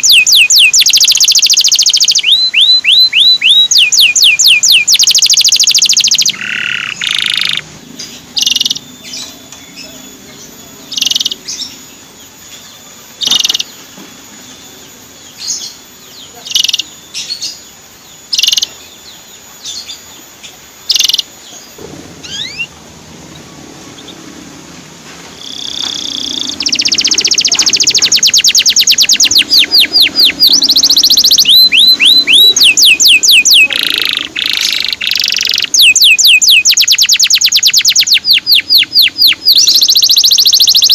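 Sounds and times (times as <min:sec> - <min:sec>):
canary chirping: 0:00.0 - 0:24.4, 0:25.4 - 0:40.9
canary fast rising repeated notes: 0:22.1 - 0:40.9.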